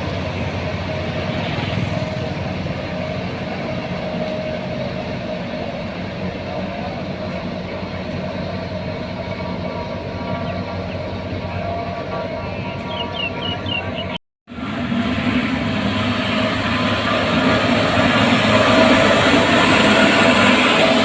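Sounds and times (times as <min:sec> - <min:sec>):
heavy diesel machinery rumbling: 0:00.0 - 0:21.0.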